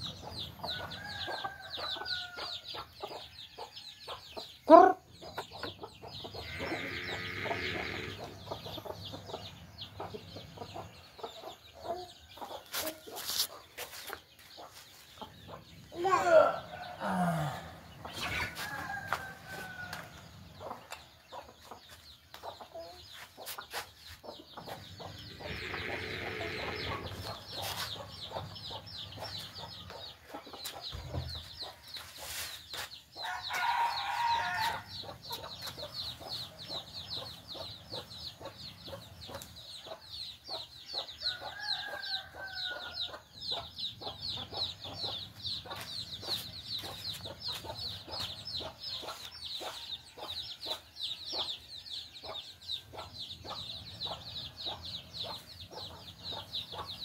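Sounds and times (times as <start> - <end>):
hens clucking: 4.7 - 32.9
rooster calls: 6.4 - 8.3, 16.0 - 20.1, 25.2 - 27.3.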